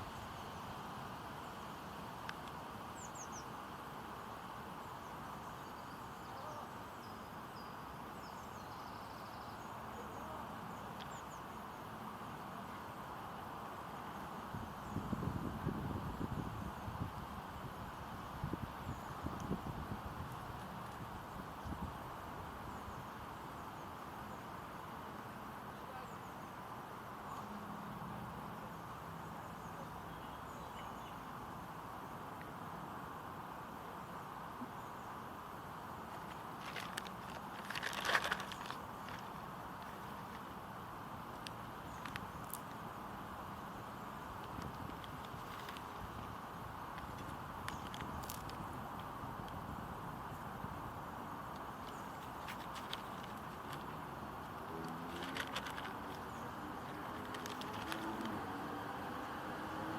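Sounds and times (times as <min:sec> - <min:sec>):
steady wind: 0:00.0 - 0:59.9
faint bird chirps: 0:04.9 - 0:11.8, 0:28.5 - 0:31.3
wind noise: 0:14.4 - 0:23.1, 0:44.2 - 0:59.9
wind buffeting microphone: 0:14.6 - 0:22.0.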